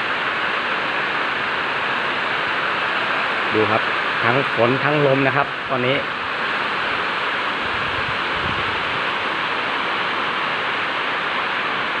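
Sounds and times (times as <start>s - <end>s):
heavy rain in strong wind: 0.0s - 12.0s.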